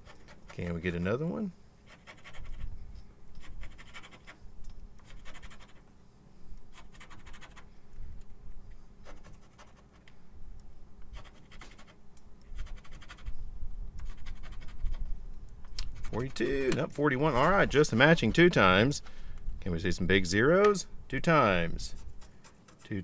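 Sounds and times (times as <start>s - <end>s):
scratching lottery ticket: 0.0s - 1.0s, 1.8s - 2.7s, 3.4s - 4.4s, 5.0s - 5.9s, 6.7s - 7.7s, 9.0s - 10.0s, 11.1s - 13.3s, 14.0s - 15.0s, 15.8s - 16.6s, 21.9s - 23.0s.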